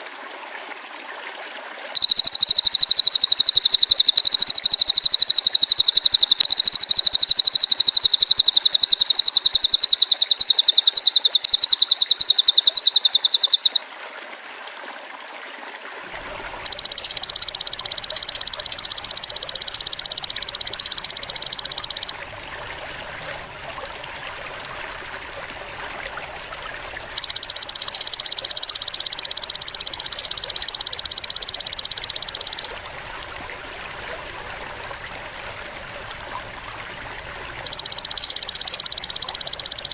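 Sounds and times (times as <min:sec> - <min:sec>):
grasshopper buzzing trill: 0:02.0 - 0:13.8, 0:16.6 - 0:22.2, 0:27.2 - 0:32.7, 0:37.6 - 0:39.9.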